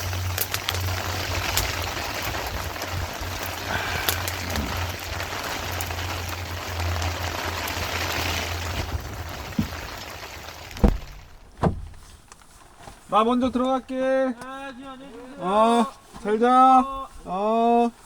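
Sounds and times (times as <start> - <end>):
steady rain falling: 0.0 - 13.9.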